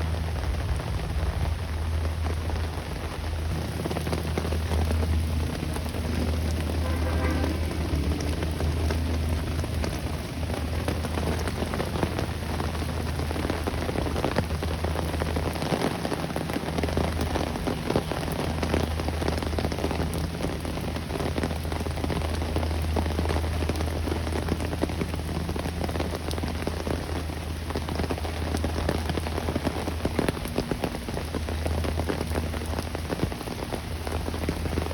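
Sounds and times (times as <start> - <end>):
low rumble: 0.0 - 15.6
rain falling: 0.0 - 34.9.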